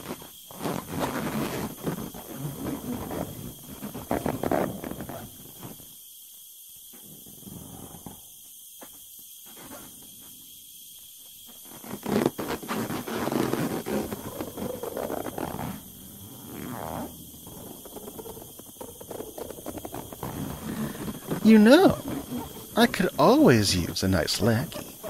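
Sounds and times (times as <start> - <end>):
rubber balloon creaking and squeaking: 0.0 - 5.7, 11.8 - 25.0.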